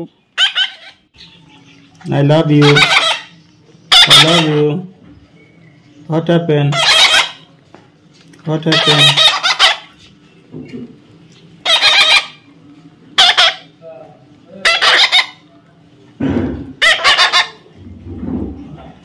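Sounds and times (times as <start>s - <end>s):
parrot squawking: 0.4s - 1.5s, 2.4s - 4.8s, 6.7s - 7.5s, 8.6s - 10.0s, 11.6s - 12.5s, 13.2s - 13.8s, 14.5s - 15.5s, 16.7s - 17.7s.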